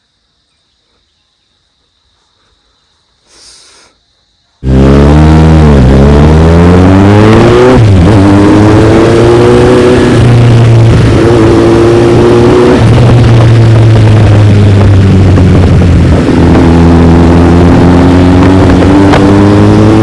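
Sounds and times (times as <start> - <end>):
motorcycle engine accelerating: 4.6 - 20.0.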